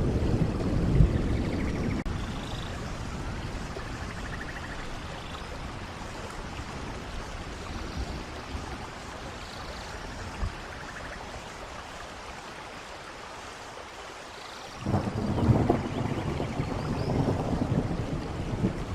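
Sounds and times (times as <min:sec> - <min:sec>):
rain: 0:00.0 - 0:18.9.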